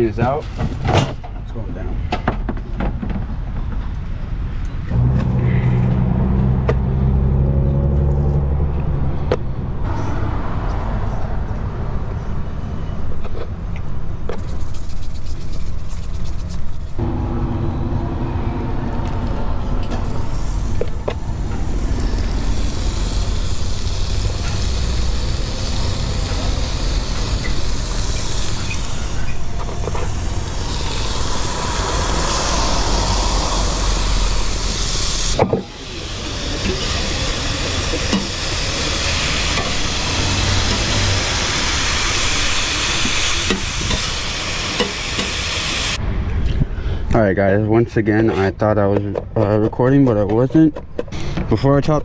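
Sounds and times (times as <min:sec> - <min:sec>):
steady hissing noise: 0:19.6 - 0:46.1.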